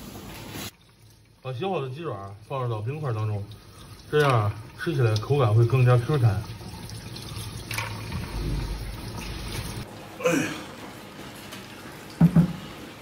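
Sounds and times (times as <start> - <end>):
water splashing: 0.7 - 9.9.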